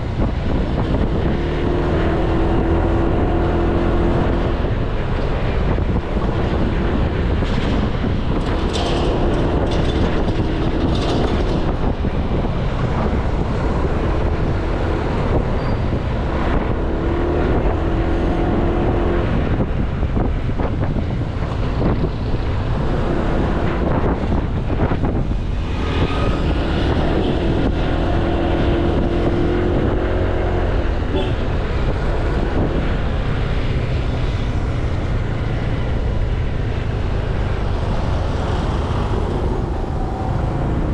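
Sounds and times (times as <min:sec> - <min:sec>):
wind rumble on microphone: 0:00.0 - 0:40.9
scooter engine hum: 0:34.7 - 0:40.9.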